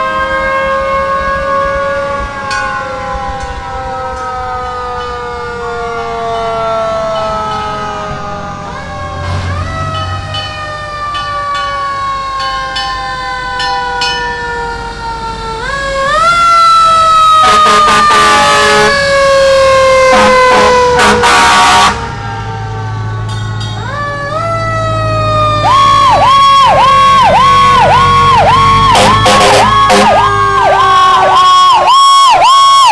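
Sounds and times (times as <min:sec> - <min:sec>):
fire engine sirens wailing: 0:00.0 - 0:32.9
siren fast warble: 0:07.4 - 0:32.9
air horn blasts: 0:17.4 - 0:19.0, 0:20.0 - 0:22.1, 0:28.9 - 0:31.5.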